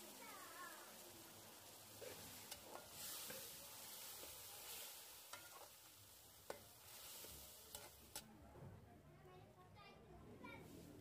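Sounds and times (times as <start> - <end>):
vermicelli sizzling in a pan: 0.0 - 8.3
metal spatula scraping a pan: 1.9 - 8.3.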